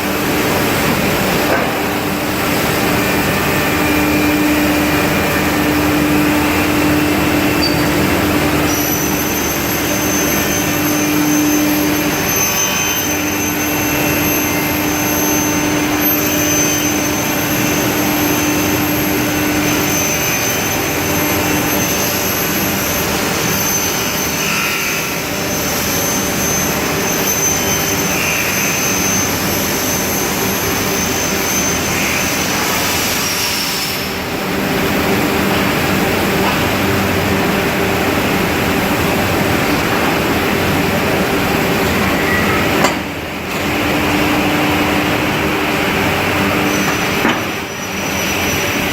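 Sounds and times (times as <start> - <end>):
high steady whine: 0.0 - 32.7
industrial machinery roar: 0.0 - 48.9.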